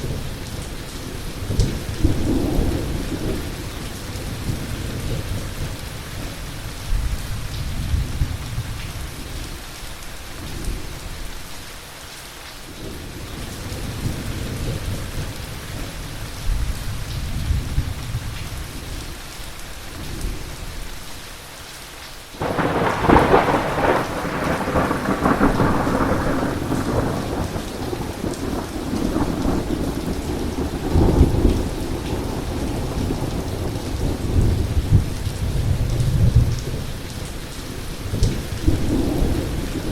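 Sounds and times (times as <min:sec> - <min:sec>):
heavy rain falling: 0:00.0 - 0:39.9
distant thunder rumbling: 0:22.4 - 0:36.6
loud thunderclap: 0:22.4 - 0:36.6.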